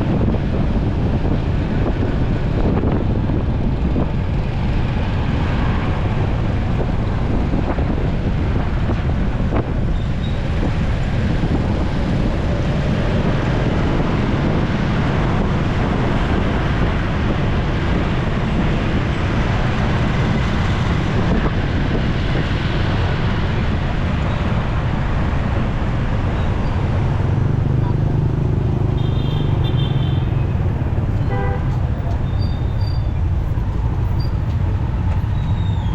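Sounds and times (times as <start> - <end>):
road noise in traffic: 0.0 - 35.9
wind rush on microphone: 0.0 - 35.9
motorcycle engine: 27.3 - 35.0.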